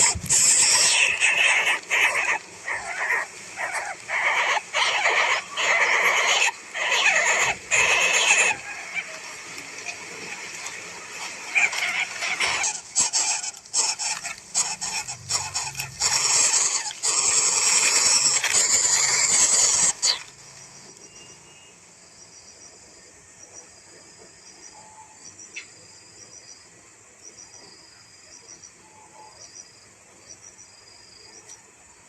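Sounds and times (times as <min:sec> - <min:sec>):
crickets chirping: 0:00.0 - 0:32.0
rough crackling and rustling: 0:07.4 - 0:21.0.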